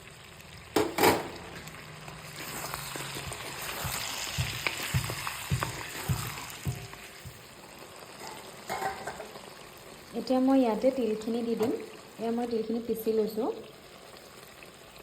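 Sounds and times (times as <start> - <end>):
soft sizzle: 0.0 - 15.0
spatula stirring curry: 1.8 - 9.6
spatula knocking against pan: 3.3 - 7.4.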